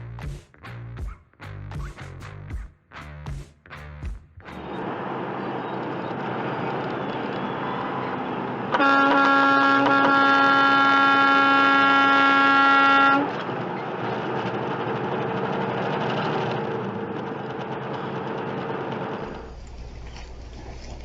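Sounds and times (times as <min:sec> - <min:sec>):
road and traffic noise: 0:04.4 - 0:21.0
long horn blast: 0:06.9 - 0:13.6.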